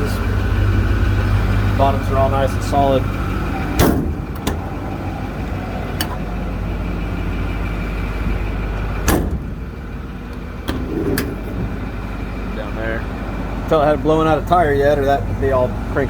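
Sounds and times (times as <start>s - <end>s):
truck engine idling: 0.0s - 16.0s
sharp knocks: 3.8s - 4.7s.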